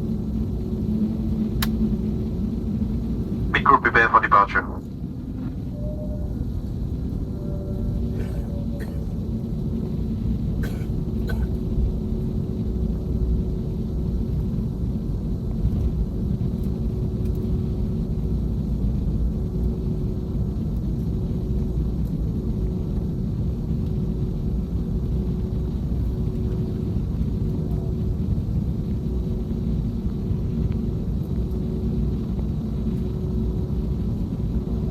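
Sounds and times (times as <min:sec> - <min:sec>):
aircraft cabin engine drone: 0:00.0 - 0:34.9
light clicks in cabin: 0:01.4 - 0:02.0, 0:16.5 - 0:17.5.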